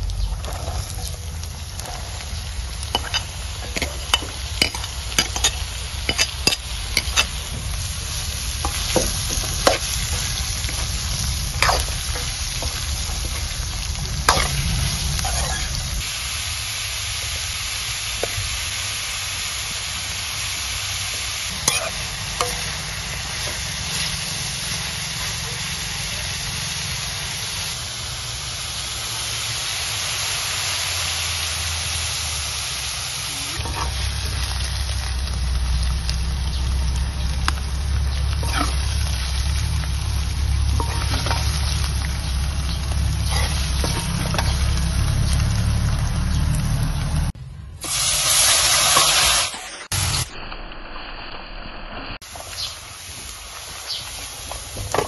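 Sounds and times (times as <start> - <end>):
mushrooms sizzling in a wok: 0.0 - 51.2, 51.9 - 55.0
metal ladle scraping a pan: 2.8 - 16.0, 21.5 - 24.1, 33.6 - 34.2, 38.4 - 39.0, 40.7 - 44.8.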